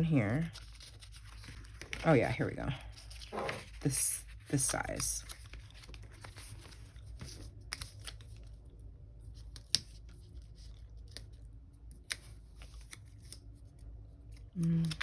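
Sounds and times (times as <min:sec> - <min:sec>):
paper rustling: 0:00.5 - 0:03.9.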